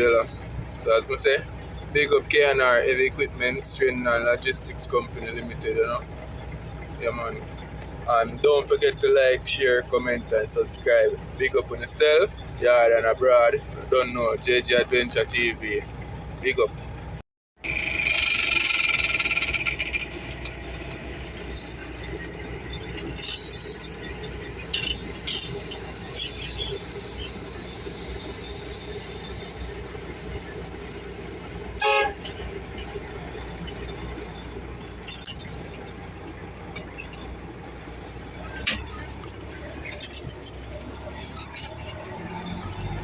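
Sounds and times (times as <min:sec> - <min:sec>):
truck diesel engine rumble: 0:00.0 - 0:43.0
loud hiss: 0:23.2 - 0:31.8
short horn toot: 0:31.6 - 0:32.4.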